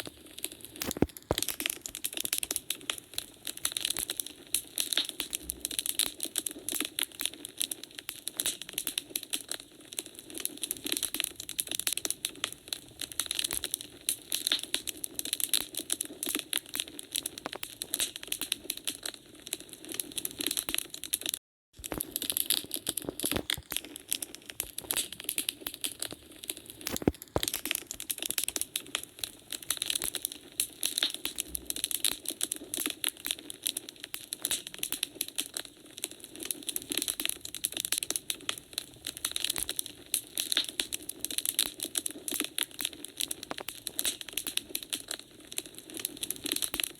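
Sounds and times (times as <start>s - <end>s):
wood fire crackling: 0.0s - 46.9s
sharp pop of fire: 0.8s - 2.1s, 26.8s - 28.0s.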